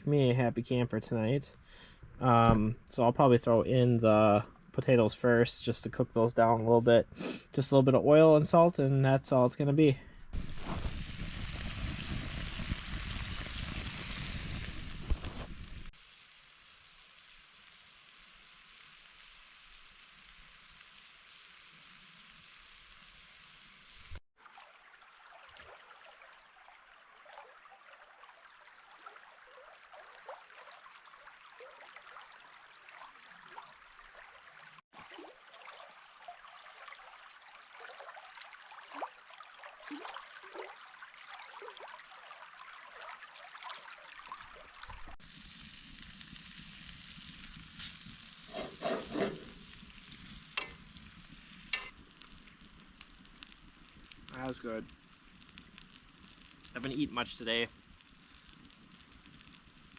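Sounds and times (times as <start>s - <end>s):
potatoes frying in oil: 10.4s - 24.2s, 39.5s - 59.9s.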